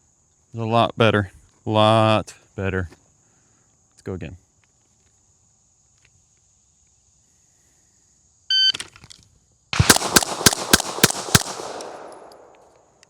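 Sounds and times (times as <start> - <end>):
pistol shots: 9.8 - 12.9.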